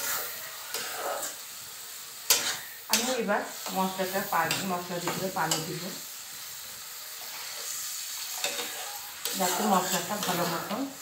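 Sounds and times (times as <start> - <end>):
metal spatula stirring: 0.0 - 1.4, 2.3 - 5.8, 7.2 - 10.8
food sizzling in oil: 0.0 - 11.0.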